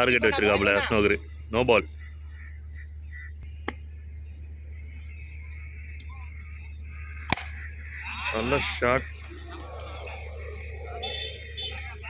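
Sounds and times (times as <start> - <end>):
steady low hum: 0.0 - 12.0
cricket bat striking a ball: 7.2 - 7.6.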